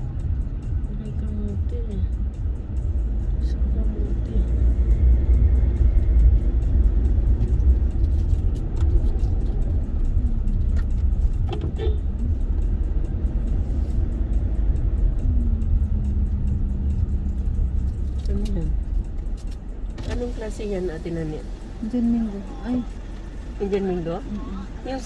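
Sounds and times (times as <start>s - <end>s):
vehicle engine and road noise: 0.0s - 25.0s
faint clicks and rattles: 14.1s - 20.7s.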